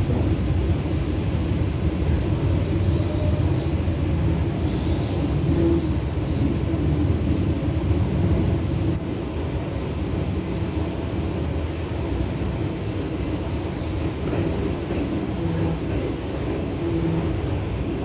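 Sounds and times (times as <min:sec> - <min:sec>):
train rumbling along track: 0:00.0 - 0:18.0.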